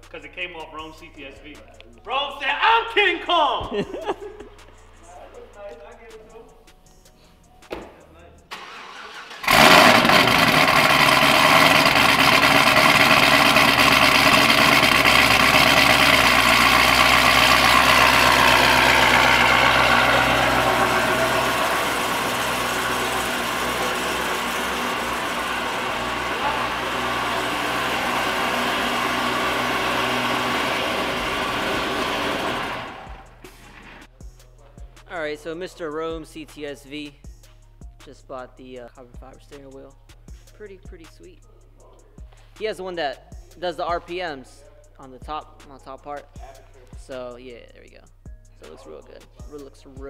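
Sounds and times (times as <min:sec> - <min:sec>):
car engine idling: 0:00.0 - 0:07.2, 0:08.2 - 0:33.8.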